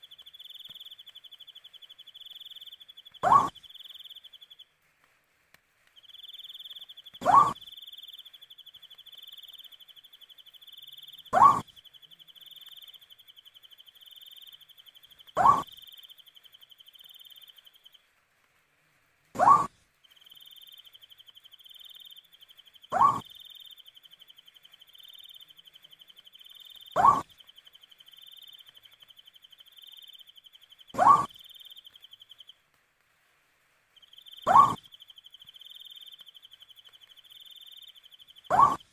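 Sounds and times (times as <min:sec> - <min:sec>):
owl rising call: 0:03.2 - 0:03.6, 0:07.2 - 0:07.6, 0:11.3 - 0:11.7, 0:15.4 - 0:15.8, 0:19.4 - 0:19.7, 0:22.9 - 0:23.3, 0:27.0 - 0:27.3, 0:31.0 - 0:31.4, 0:34.4 - 0:34.9, 0:38.5 - 0:38.9.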